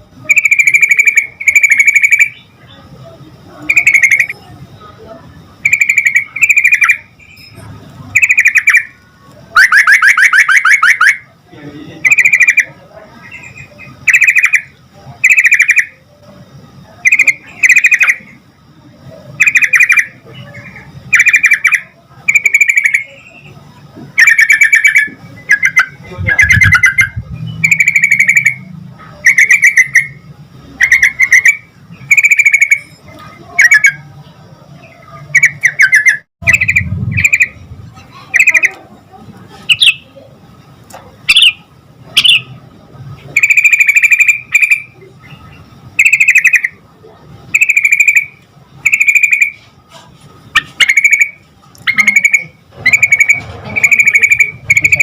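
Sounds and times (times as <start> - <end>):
bird calling in bubbly phrases: 0.3 - 2.5, 3.7 - 4.4, 5.6 - 7.1, 8.2 - 11.3, 12.0 - 16.0, 17.0 - 18.4, 19.4 - 23.5, 24.2 - 30.2, 30.8 - 32.9, 33.5 - 34.1, 34.8 - 38.9, 39.7 - 40.2, 41.3 - 42.6, 43.3 - 46.8, 47.5 - 49.6, 50.6 - 55.0.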